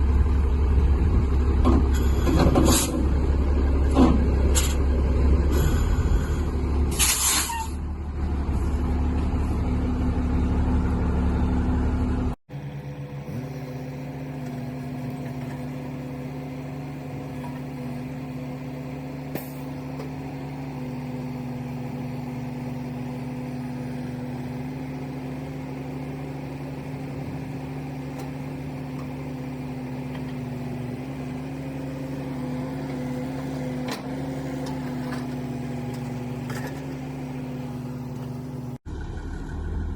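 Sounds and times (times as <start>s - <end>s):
truck engine running: 0.0s - 39.9s
short sharp air hiss: 6.9s - 7.8s.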